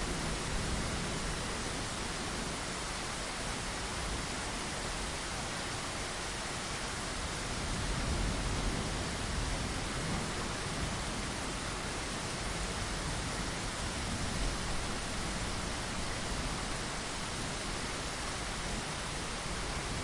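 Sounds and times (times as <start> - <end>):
rain against a window: 0.0 - 20.0.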